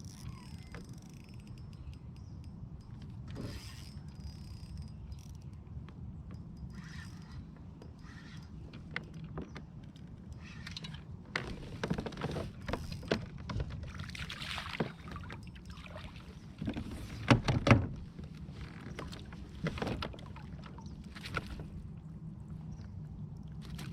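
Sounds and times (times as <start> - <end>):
paddle splashing in water: 11.4 - 21.9.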